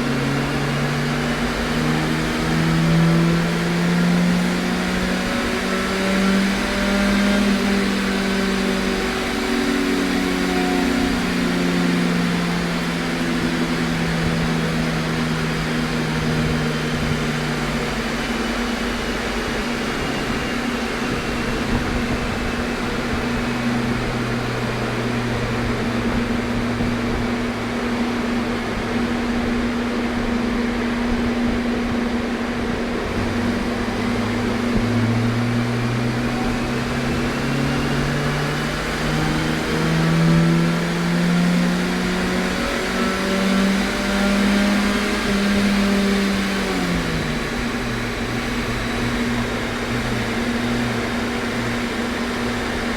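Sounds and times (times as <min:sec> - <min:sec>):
car engine running: 0:00.0 - 0:52.9
steady hum: 0:32.5 - 0:52.9.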